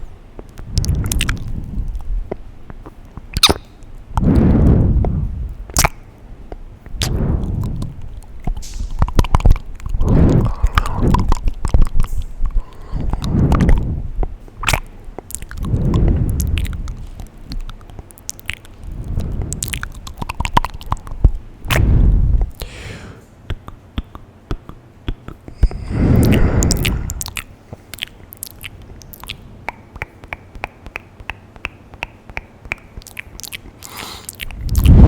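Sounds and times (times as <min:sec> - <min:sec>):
wet mouth clicks and smacks: 0:00.4 - 0:04.4, 0:05.0 - 0:22.7, 0:23.5 - 0:35.0
loud rushing sounds: 0:34.5 - 0:35.0.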